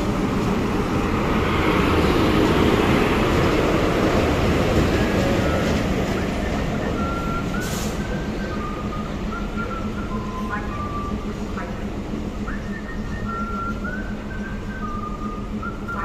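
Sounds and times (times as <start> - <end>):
coaches rolling on rails: 0.0 - 16.0
electric locomotive passing: 0.0 - 16.0.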